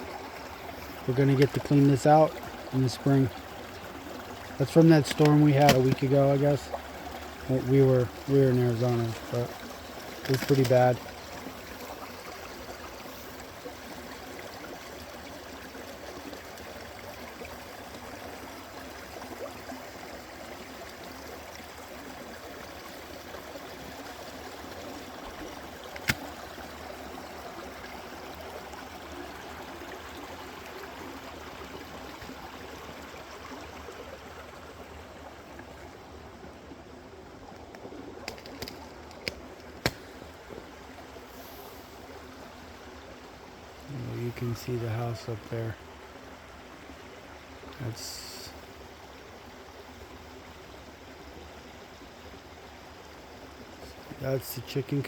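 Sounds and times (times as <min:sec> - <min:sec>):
creek flowing: 0:00.0 - 0:55.0
sharp clicks: 0:25.9 - 0:26.3.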